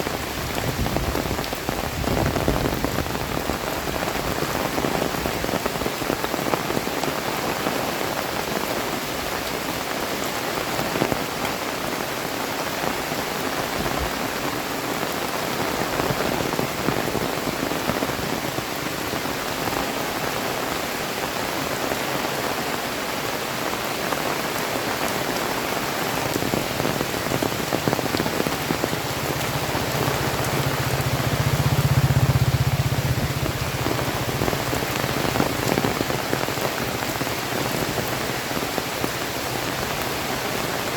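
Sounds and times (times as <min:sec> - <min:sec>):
heavy rain: 0:00.0 - 0:40.9
low rumble: 0:27.6 - 0:35.7.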